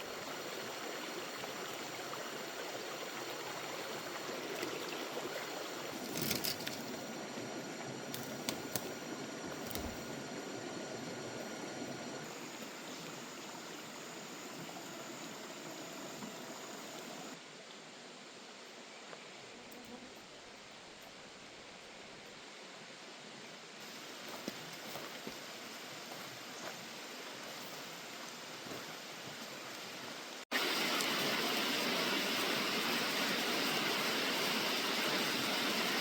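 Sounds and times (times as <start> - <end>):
stream flowing: 0.0 - 17.4, 27.8 - 36.0
sharp clicks: 8.2 - 9.0.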